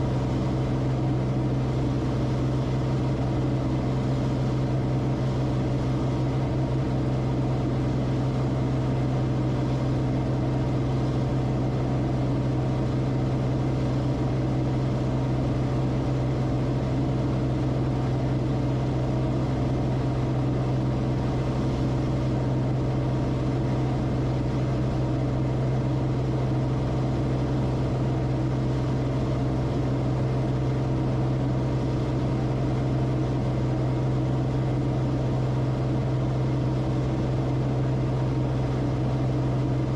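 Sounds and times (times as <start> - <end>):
aircraft engine and propeller drone: 0.0 - 39.9.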